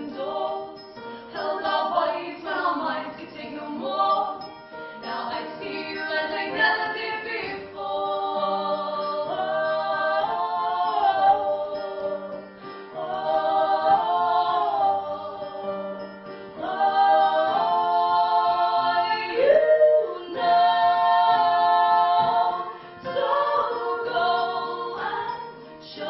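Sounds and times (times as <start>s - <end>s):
harmonised singing: 0.0s - 26.0s.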